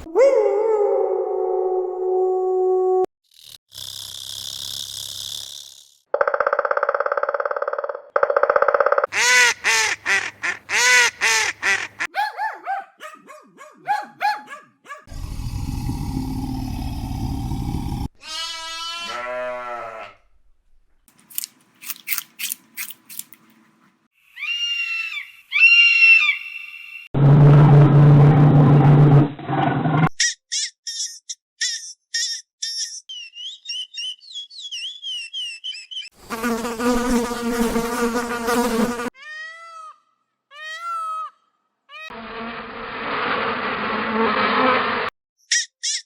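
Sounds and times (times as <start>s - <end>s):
loud low growl: 15.1s - 18.1s, 27.2s - 29.8s
low animal rumbling: 15.1s - 18.1s
rising and falling animal calls: 24.3s - 27.1s, 33.1s - 36.2s.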